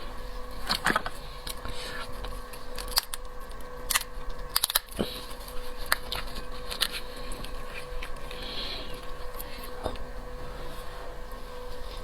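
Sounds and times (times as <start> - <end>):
faint steady hum: 0.0 - 12.0
shellfish shells cracking: 2.2 - 5.2.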